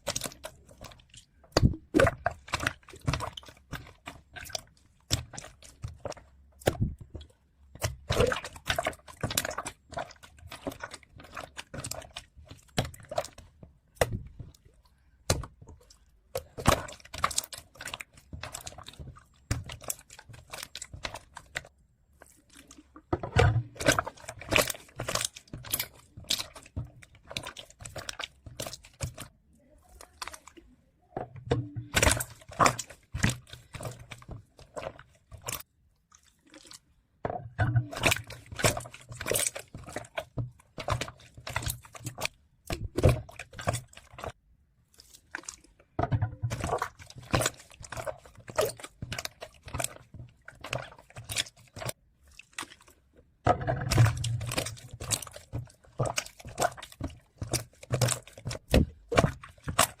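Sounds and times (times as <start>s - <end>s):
slime squished by hand: 0.0s - 31.2s, 53.6s - 60.0s.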